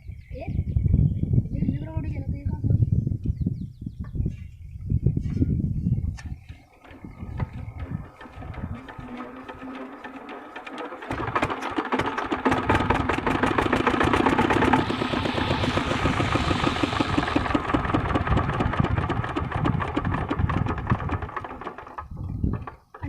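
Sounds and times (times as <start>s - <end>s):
diesel pump engine knocking: 6.4s - 23.0s.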